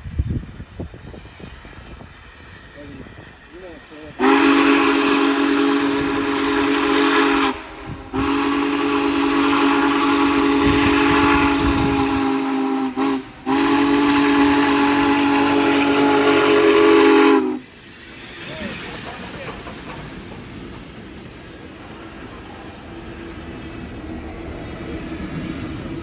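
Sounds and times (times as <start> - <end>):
rumble of passing train: 0.0 - 26.0
steam locomotive chime whistle: 4.2 - 17.7.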